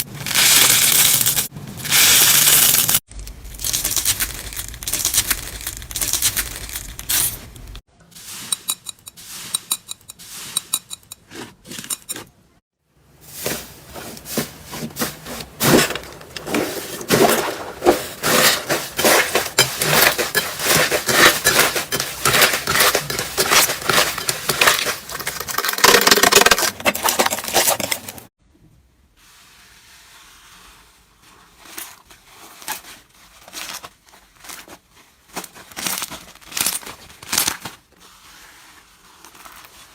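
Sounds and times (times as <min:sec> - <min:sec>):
slime crackling and popping: 0:02.0 - 0:07.4.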